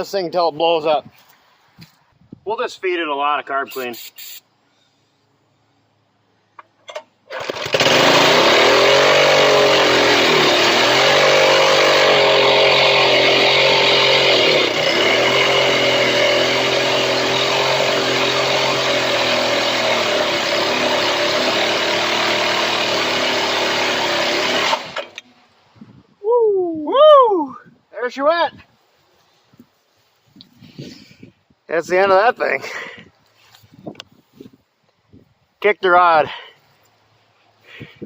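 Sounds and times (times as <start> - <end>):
tiller engine running at high revs: 7.3 - 25.2.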